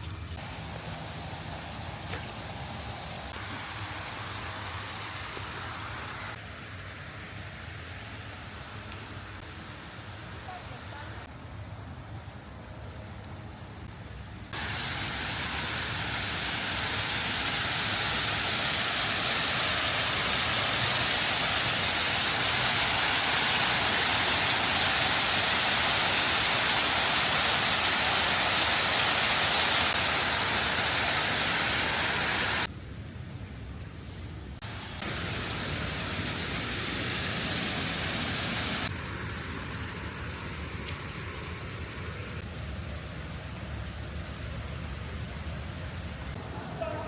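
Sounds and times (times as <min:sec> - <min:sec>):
loud rushing hiss: 0:00.0 - 0:06.9, 0:14.6 - 0:32.7, 0:34.6 - 0:46.4.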